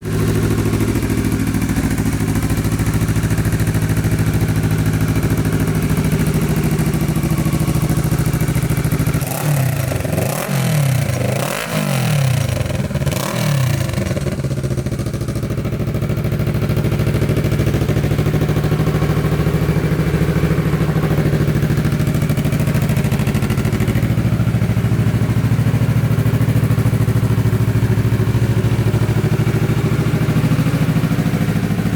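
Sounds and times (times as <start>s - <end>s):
motorcycle engine idling and revving: 0.0s - 31.9s.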